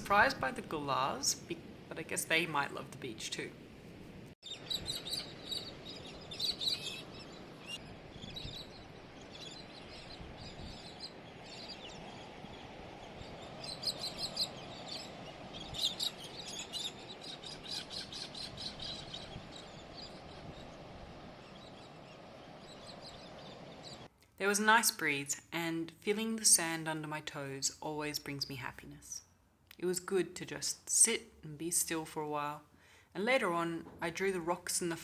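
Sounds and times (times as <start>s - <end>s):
birds chirping in bursts: 4.4s - 24.1s.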